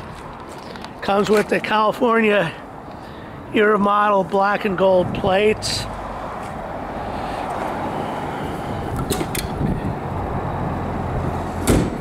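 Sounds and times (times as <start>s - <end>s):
low vehicle rumble: 4.6s - 12.0s
thump: 11.6s - 12.0s.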